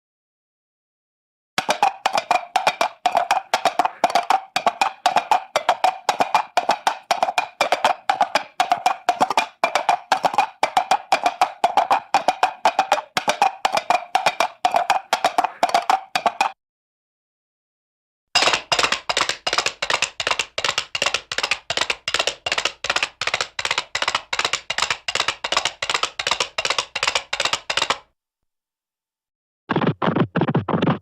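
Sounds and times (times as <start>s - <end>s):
horse hooves clip-clopping: 1.6s - 16.6s, 18.4s - 28.1s.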